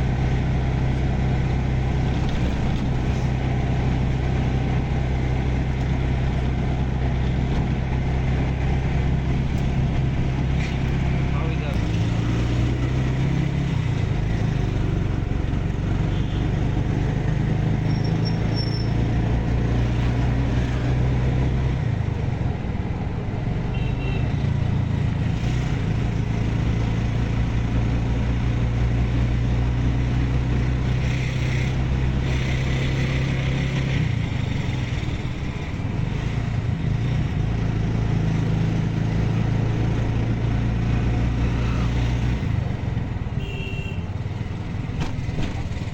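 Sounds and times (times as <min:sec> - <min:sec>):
tyre and road noise: 0:00.0 - 0:45.9
vehicle engine running: 0:00.0 - 0:45.9.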